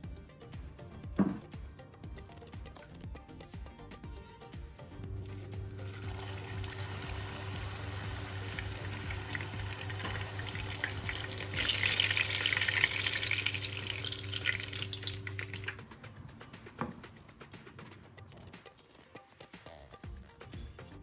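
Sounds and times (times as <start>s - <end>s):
meat sizzling in oil: 5.8s - 15.8s.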